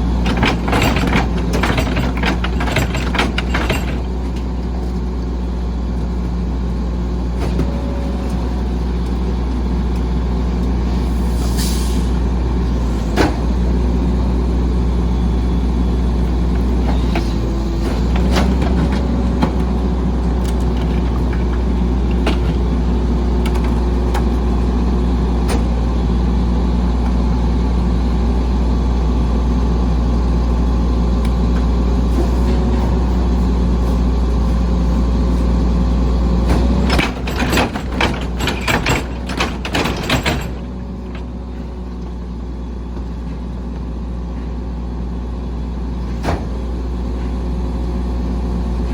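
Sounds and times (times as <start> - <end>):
garbage truck diesel engine running: 0.0 - 48.9
sharp knocks and clanks: 0.2 - 4.5, 36.5 - 41.3.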